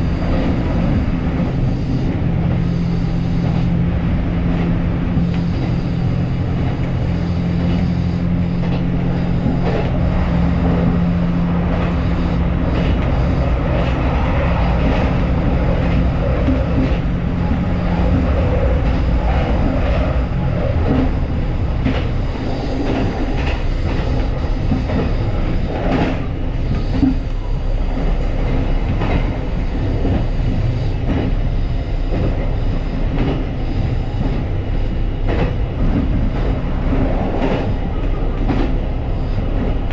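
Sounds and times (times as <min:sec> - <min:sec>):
diesel railcar engine drone: 0:00.0 - 0:39.9.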